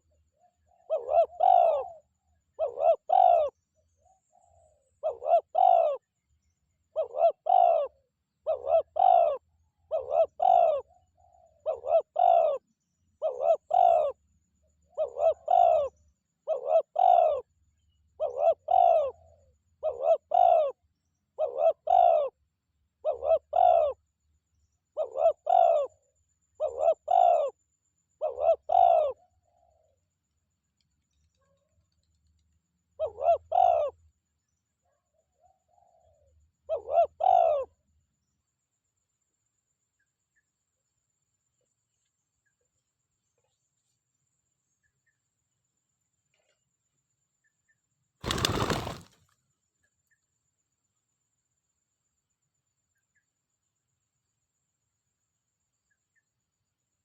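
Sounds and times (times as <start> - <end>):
dove cooing: 0.0 - 6.0, 6.9 - 12.6, 13.2 - 14.2, 14.9 - 17.5, 18.2 - 20.8, 21.4 - 22.4, 23.0 - 24.0, 25.0 - 25.9, 26.6 - 27.5, 28.2 - 29.9, 33.0 - 34.0, 35.4 - 37.7, 48.2 - 49.2.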